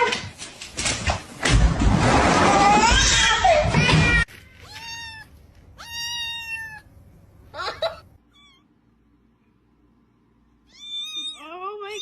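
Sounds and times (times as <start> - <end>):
cat meowing: 3.7 - 6.9, 7.6 - 8.7, 10.7 - 12.0.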